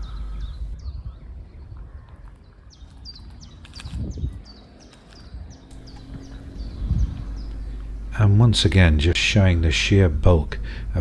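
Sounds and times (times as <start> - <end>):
low outdoor rumble: 0.0 - 0.8, 5.7 - 11.0
small bird chirping: 0.0 - 0.8, 5.8 - 8.8.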